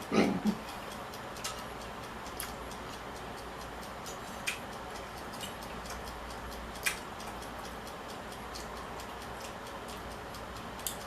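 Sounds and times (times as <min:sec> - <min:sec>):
person eating mouth clicks: 0:05.2 - 0:06.1.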